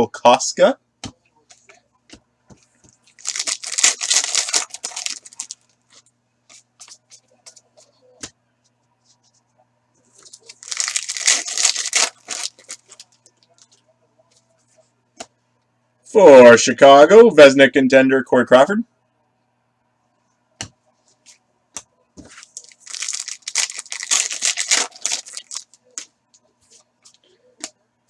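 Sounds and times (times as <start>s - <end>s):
cards clicking and rustling: 2.6s - 7.6s, 10.2s - 13.7s, 22.2s - 26.1s
card pack wrapper tearing: 3.2s - 5.6s, 10.2s - 13.1s, 22.4s - 26.1s.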